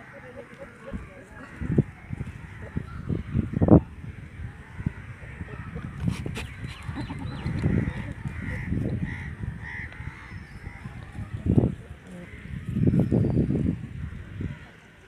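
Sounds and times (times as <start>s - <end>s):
low rumbling microphone noise: 0.7s - 15.0s
bird calling: 5.0s - 11.2s.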